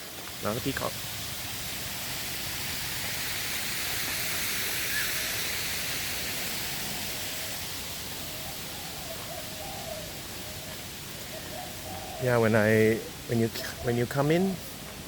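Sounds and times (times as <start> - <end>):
waterfall hissing: 0.0 - 15.0
bird cooing: 4.8 - 5.6, 6.2 - 14.6.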